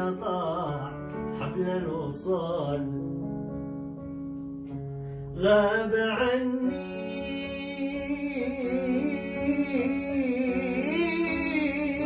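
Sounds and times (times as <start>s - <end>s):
instrumental accompaniment: 0.0s - 12.0s.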